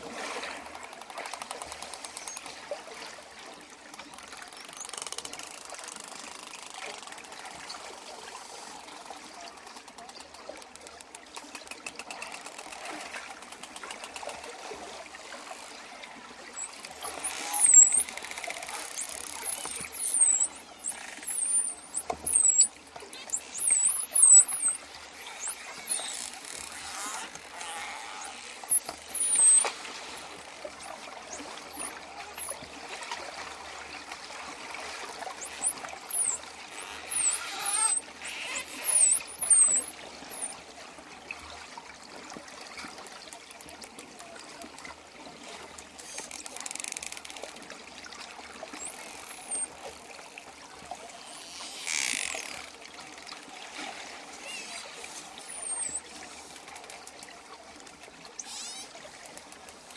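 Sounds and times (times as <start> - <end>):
water wash: 11.9 - 40.7
dolphins whistling: 16.6 - 32.6, 35.4 - 40.6, 48.8 - 49.8, 54.2 - 56.6, 58.4 - 58.9.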